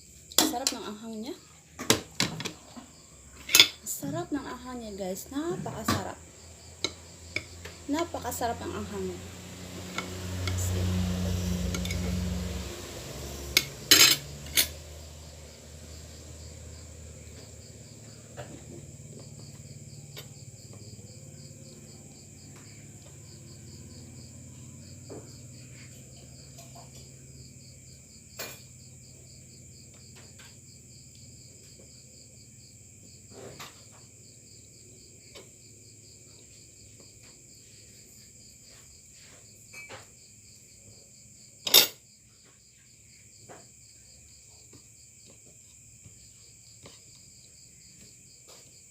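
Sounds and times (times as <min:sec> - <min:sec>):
insects chirping: 0:00.0 - 0:48.9.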